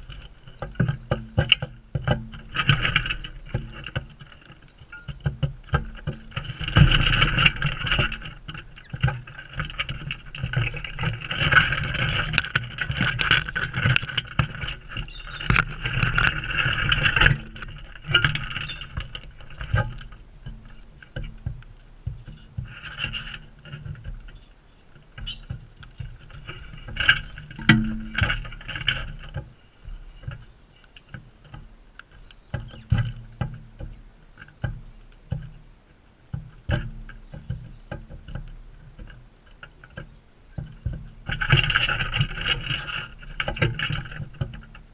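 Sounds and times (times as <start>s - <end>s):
beaks and feet tapping feeder: 13.9s - 16.3s, 17.3s - 22.7s, 24.0s - 26.2s, 36.3s - 41.6s.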